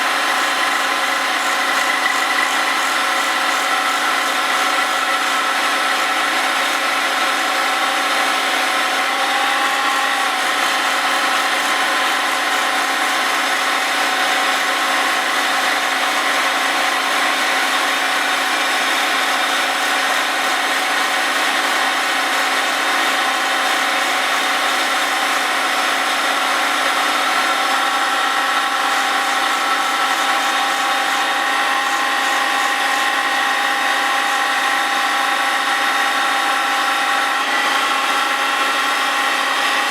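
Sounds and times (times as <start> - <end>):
grinding wheel hissing: 0.0 - 6.1.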